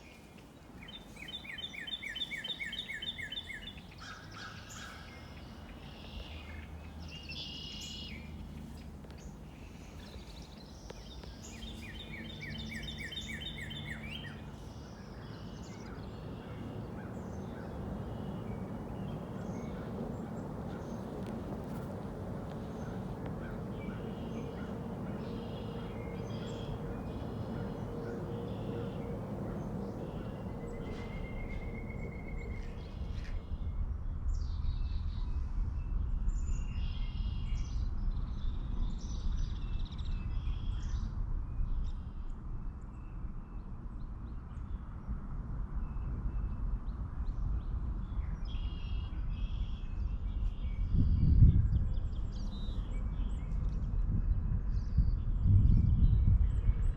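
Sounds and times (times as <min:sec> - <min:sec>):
songbirds chirping: 0:00.0 - 0:33.6
low rumble: 0:15.6 - 0:34.6.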